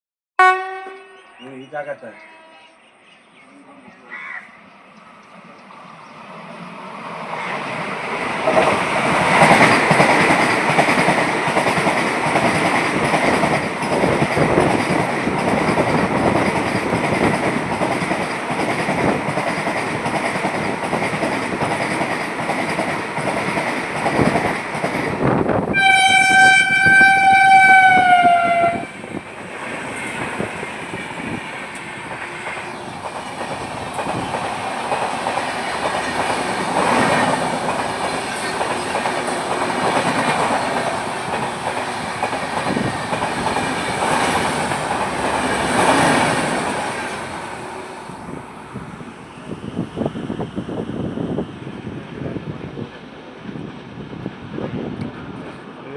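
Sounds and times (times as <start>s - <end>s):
train horn blast: 0.4s - 1.4s, 2.1s - 2.8s, 25.7s - 29.0s
train wheels clickety-clack: 7.4s - 47.6s.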